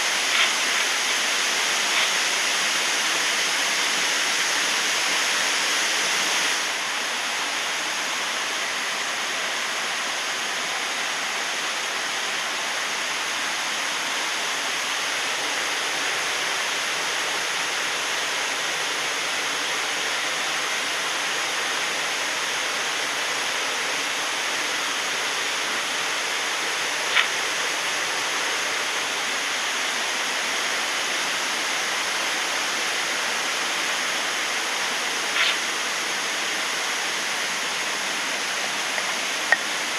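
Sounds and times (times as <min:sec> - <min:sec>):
waterfall pouring: 0:00.0 - 0:04.9, 0:37.6 - 0:39.9.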